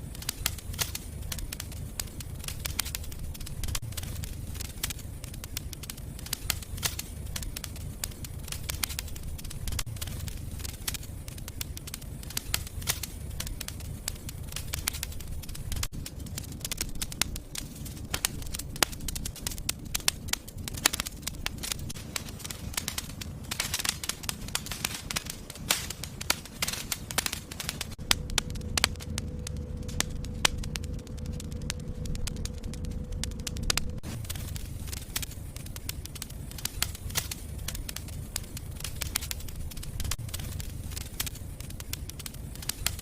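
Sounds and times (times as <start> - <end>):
low rumble of flames: 0.0 - 43.0
wood fire crackling and popping: 0.0 - 43.0.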